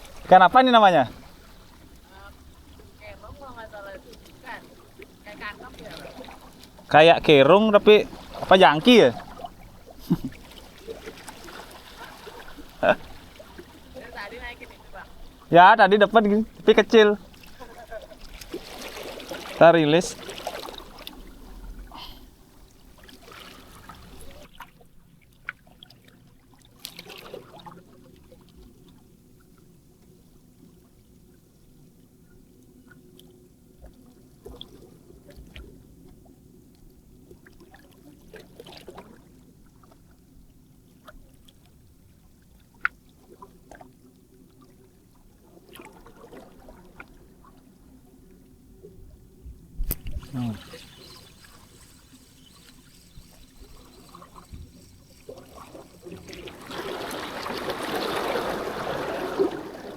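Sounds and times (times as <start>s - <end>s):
water lapping and trickling: 0.0s - 59.9s
low steady hum: 47.9s - 59.9s.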